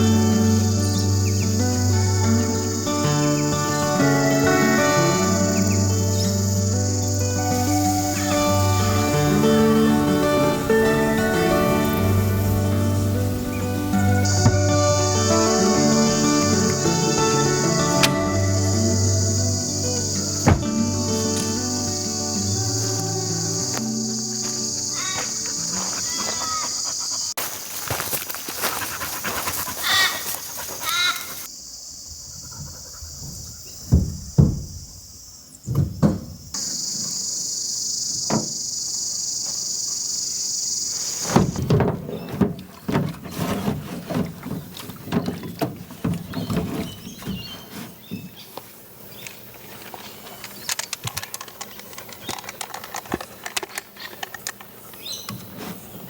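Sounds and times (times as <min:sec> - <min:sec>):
insects droning: 0:00.0 - 0:56.0
handling knocks and clatter: 0:20.4 - 0:21.5, 0:41.2 - 0:56.0.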